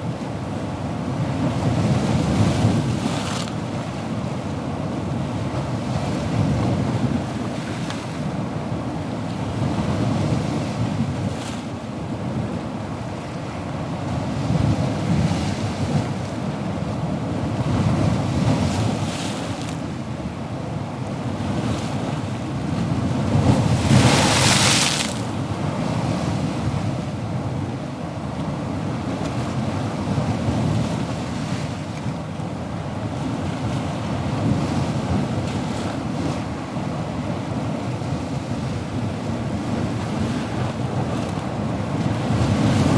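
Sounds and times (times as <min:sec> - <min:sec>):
ocean waves washing: 0:21.3 - 0:27.0, 0:34.2 - 0:42.9.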